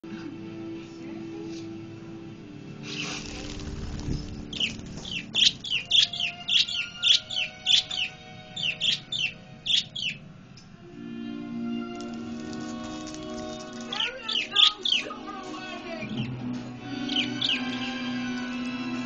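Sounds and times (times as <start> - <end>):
budgerigars chirping: 4.1 - 10.3, 13.8 - 18.6.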